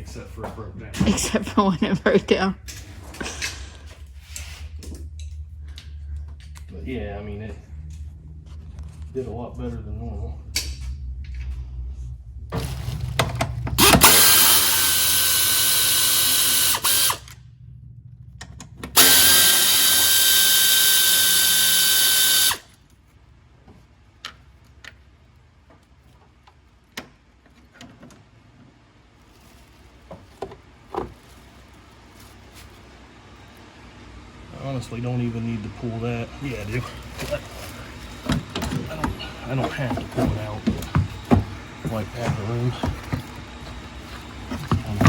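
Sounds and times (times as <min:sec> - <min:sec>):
power drill running: 0:13.8 - 0:17.4, 0:19.0 - 0:22.8.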